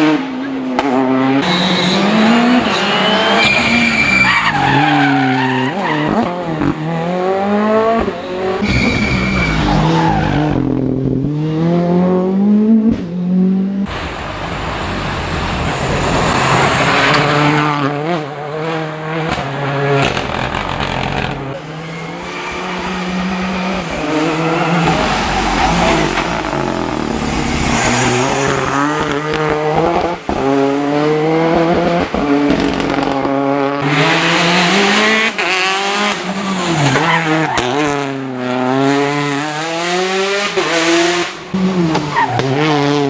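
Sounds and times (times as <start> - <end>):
rally car engines revving: 0.0 - 43.0
tyre squeal: 1.4 - 10.6, 20.0 - 29.5, 36.0 - 38.7.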